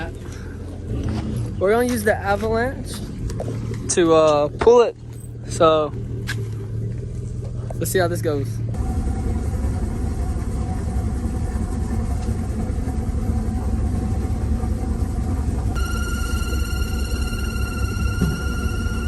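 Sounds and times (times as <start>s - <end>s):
vehicle engine rumbling: 0.0s - 19.0s
high-pitched ringing tone: 15.8s - 19.0s.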